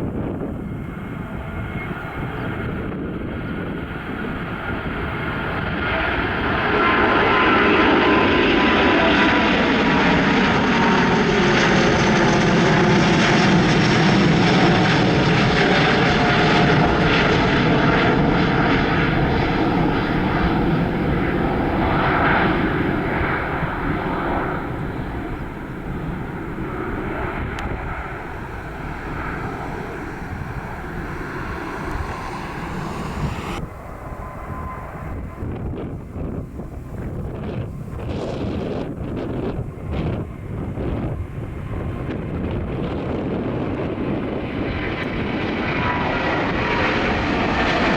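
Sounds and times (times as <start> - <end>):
jet airliner passing: 0.0 - 47.9
wind noise on microphone: 0.0 - 47.9.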